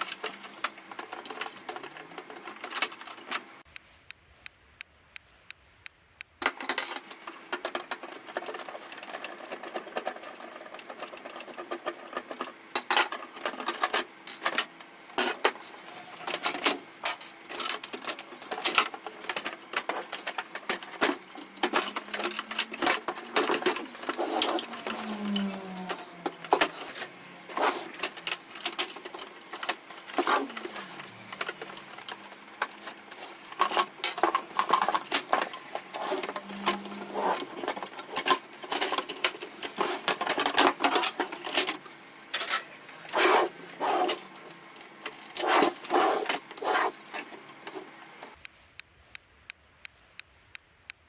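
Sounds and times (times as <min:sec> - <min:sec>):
printer parts clicking and clattering: 0:06.4 - 0:42.8.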